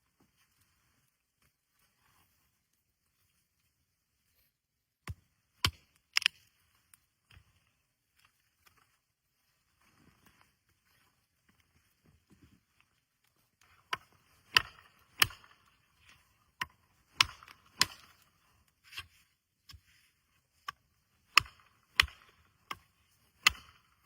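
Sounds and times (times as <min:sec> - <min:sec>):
tool chopping wood: 0:05.1 - 0:06.3, 0:13.9 - 0:15.8, 0:16.6 - 0:18.2, 0:21.3 - 0:24.0.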